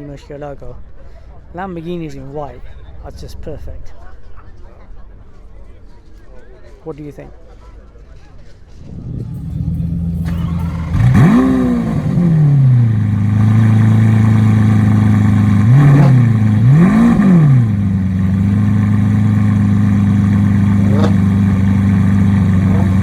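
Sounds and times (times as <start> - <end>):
car engine idling and revving: 8.8 - 23.0.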